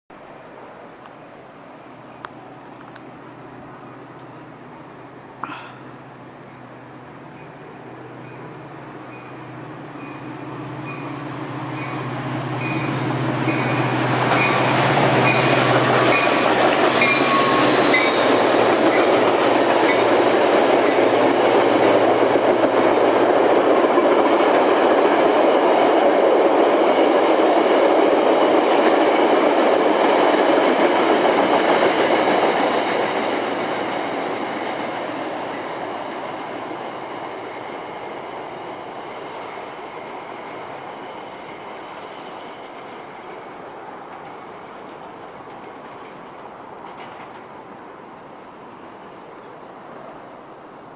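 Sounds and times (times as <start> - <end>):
train engine hum: 0.1 - 50.9
train wheels rushing on rails: 6.0 - 50.8.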